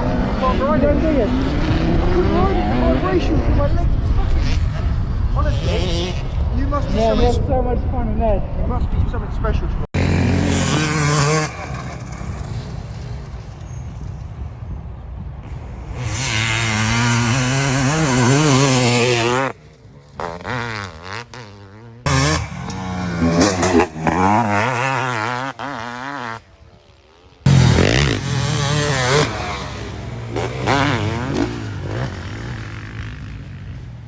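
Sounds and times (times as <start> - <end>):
motocross bike engine revving: 0.0 - 3.5, 10.0 - 14.0, 15.5 - 34.0.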